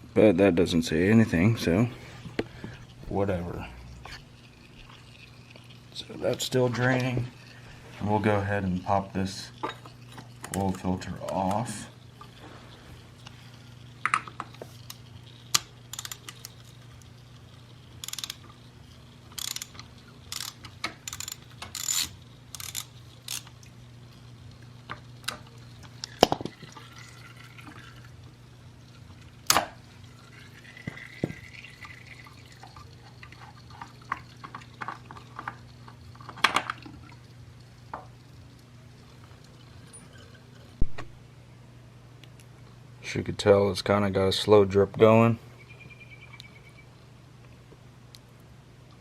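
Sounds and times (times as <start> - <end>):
steady low hum: 0.0 - 49.0
oil dripping into a pan: 2.2 - 40.9
tools clicking and clinking: 15.6 - 16.5, 18.0 - 18.4, 19.4 - 23.5.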